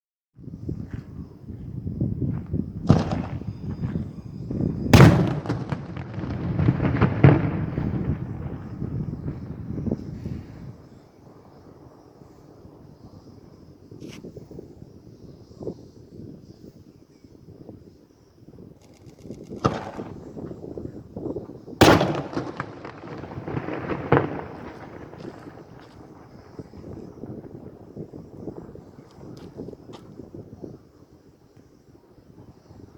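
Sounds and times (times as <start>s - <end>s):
fireworks bangs and pops: 2.4s - 11.0s, 19.2s - 30.4s.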